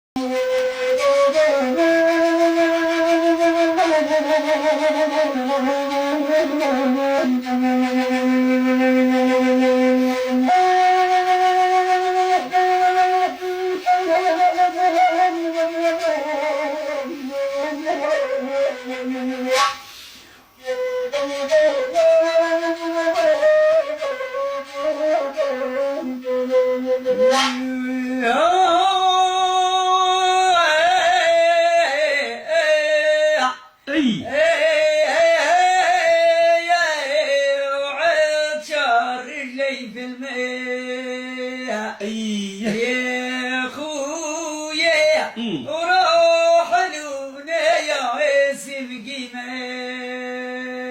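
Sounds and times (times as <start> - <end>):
solo flute melody: 0.2 - 50.9.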